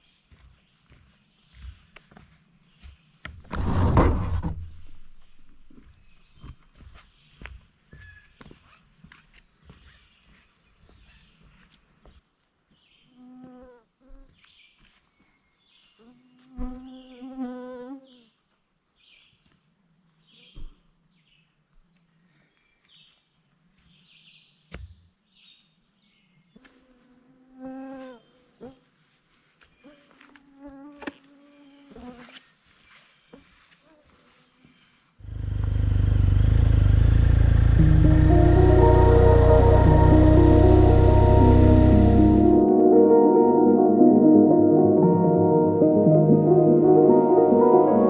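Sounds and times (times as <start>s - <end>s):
flying insect buzzing: 16.0s - 18.1s, 29.8s - 32.4s.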